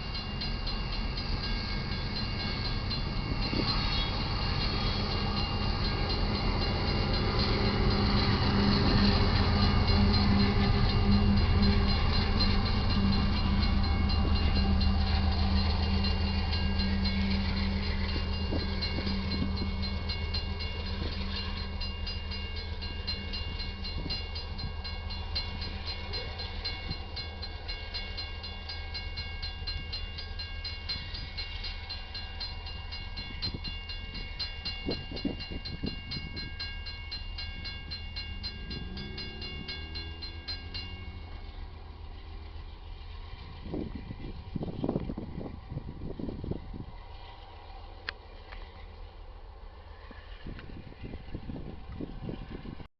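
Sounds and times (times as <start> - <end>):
diesel locomotive engine drone: 0.0 - 52.9
freight train passing: 0.0 - 52.9.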